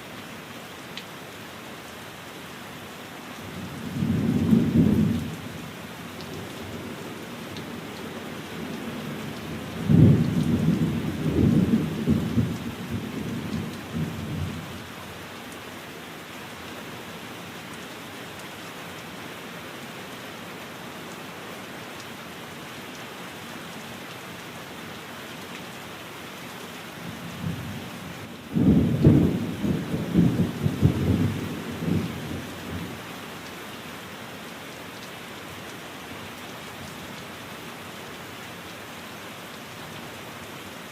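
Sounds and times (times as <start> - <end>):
steady rain: 0.0 - 40.9
thunder rumbling: 28.5 - 32.9.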